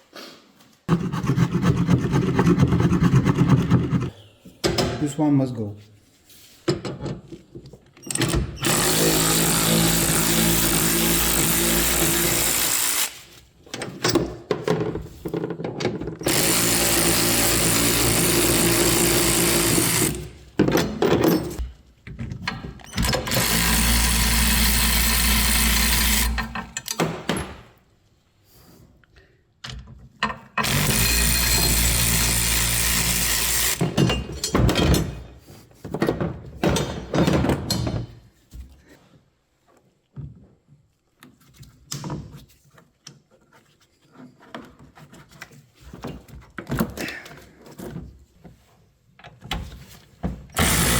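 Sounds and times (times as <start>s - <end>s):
power tool cutting: 8.6s - 13.3s, 16.2s - 20.3s, 23.0s - 26.6s, 30.6s - 33.9s, 50.6s - 50.9s.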